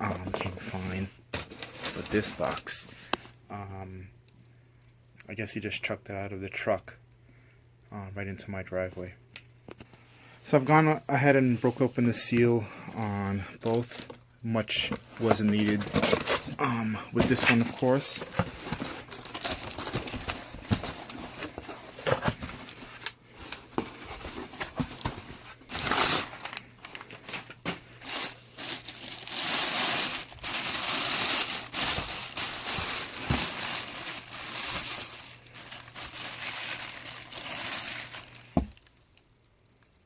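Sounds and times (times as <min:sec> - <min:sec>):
packing material crinkling: 0:00.1 - 0:02.9, 0:13.5 - 0:39.9.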